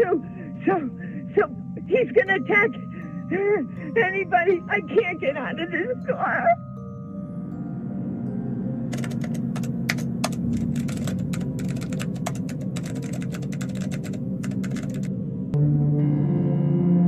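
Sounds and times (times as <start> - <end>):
steady low drone: 0.0 - 17.0
typing on computer keyboard: 8.9 - 15.1.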